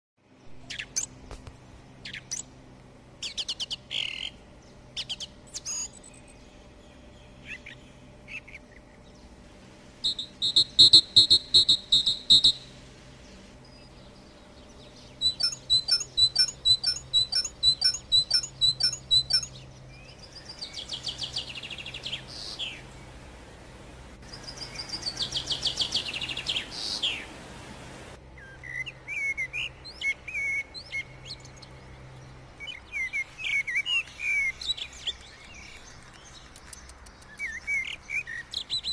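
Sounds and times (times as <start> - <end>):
songbird chirps: 0.2 - 38.9
buzzy bird trills: 14.1 - 22.8.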